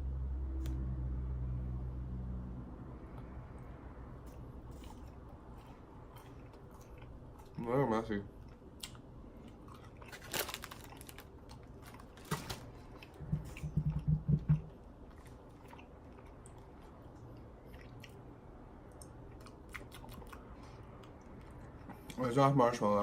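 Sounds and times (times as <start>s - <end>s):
chewing candy bar: 4.3s - 14.0s, 18.9s - 22.2s.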